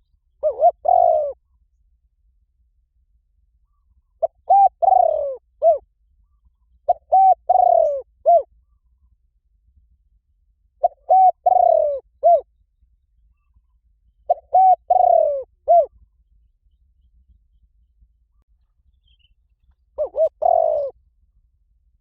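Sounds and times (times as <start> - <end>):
dove cooing: 0.0 - 1.5, 3.7 - 5.8, 6.8 - 8.8, 10.8 - 12.5, 14.3 - 16.1, 20.0 - 21.0.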